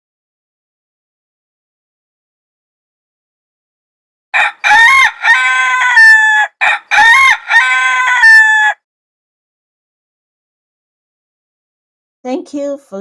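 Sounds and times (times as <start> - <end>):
rooster crowing: 4.4 - 8.9.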